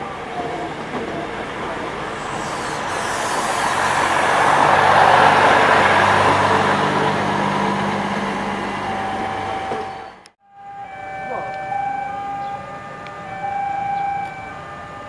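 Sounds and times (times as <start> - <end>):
steady low hum: 0.0 - 10.3
train wheels rumbling on rails: 0.0 - 10.3.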